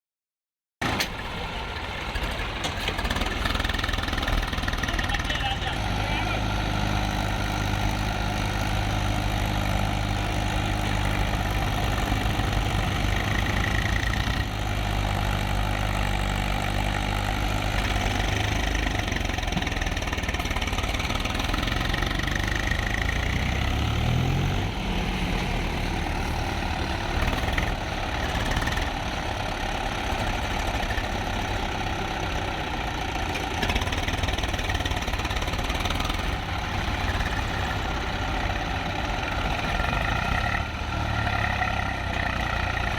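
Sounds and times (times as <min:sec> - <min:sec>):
tractor engine idling: 0:00.8 - 0:42.9.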